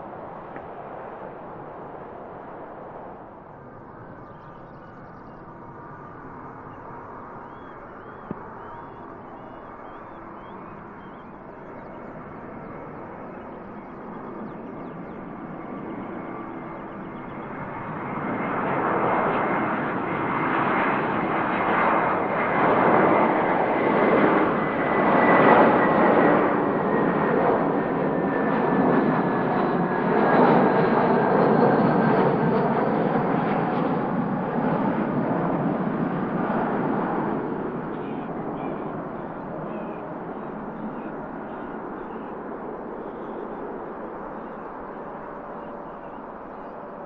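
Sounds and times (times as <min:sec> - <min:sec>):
airliner engines roaring: 0:00.0 - 0:47.0.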